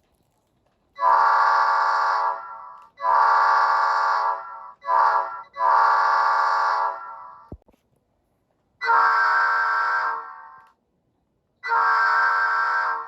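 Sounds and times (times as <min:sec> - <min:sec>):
locomotive air horn blasts: 0:01.0 - 0:07.4, 0:08.8 - 0:10.6, 0:11.6 - 0:13.0.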